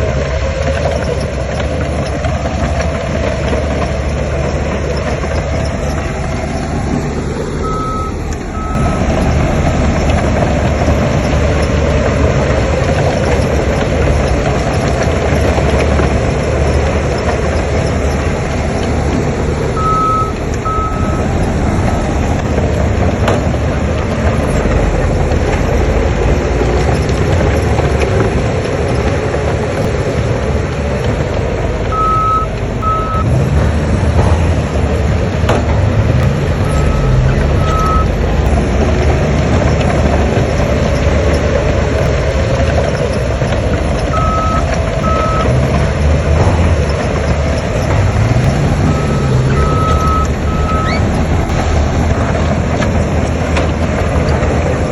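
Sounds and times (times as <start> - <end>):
heavy machinery engine: 0.0 - 54.9
reversing alarm beeps: 7.6 - 9.1, 19.8 - 21.3, 31.9 - 33.3, 36.2 - 38.1, 44.1 - 45.5, 48.4 - 51.6.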